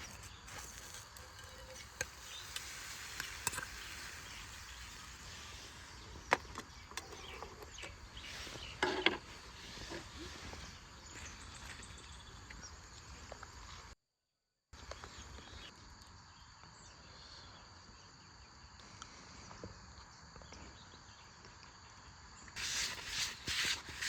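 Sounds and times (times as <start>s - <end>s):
insects chirring: 0.0s - 13.9s.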